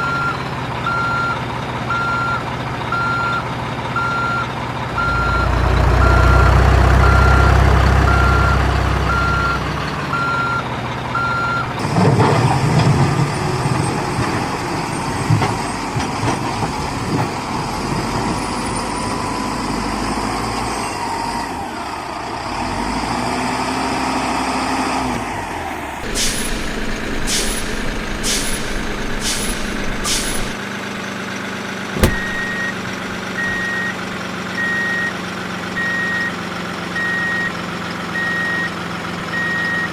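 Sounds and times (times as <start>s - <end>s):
reversing alarm beeping: 0.0s - 3.4s, 5.0s - 10.6s, 32.0s - 32.8s, 33.4s - 34.0s, 34.6s - 35.2s
heavy engines running: 0.0s - 22.9s, 25.2s - 39.9s.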